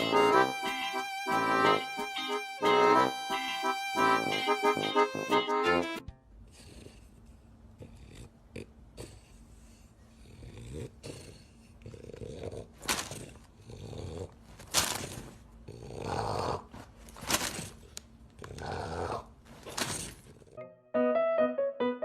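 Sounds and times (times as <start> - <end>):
pet snoring: 6.5 - 14.6, 15.3 - 16.9, 18.4 - 20.6.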